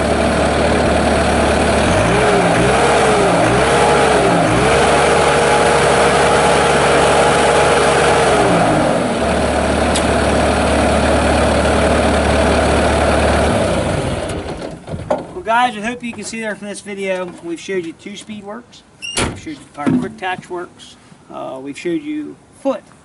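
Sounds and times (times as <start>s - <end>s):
skid steer diesel engine running: 0.0s - 15.0s.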